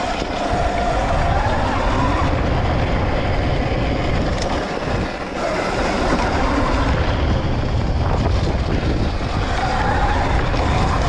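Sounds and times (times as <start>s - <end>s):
dirt bike riding: 0.0s - 11.0s
wind buffeting microphone: 0.0s - 11.0s.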